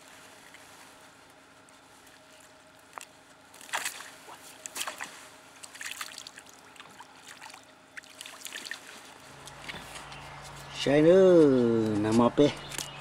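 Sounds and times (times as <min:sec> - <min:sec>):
water splashing and sloshing: 0:01.9 - 0:10.1.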